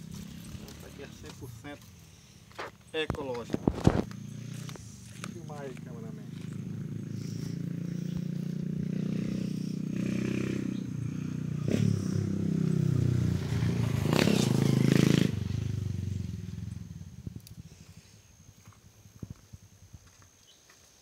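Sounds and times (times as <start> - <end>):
small engine running: 0.0 - 1.9, 3.6 - 12.8.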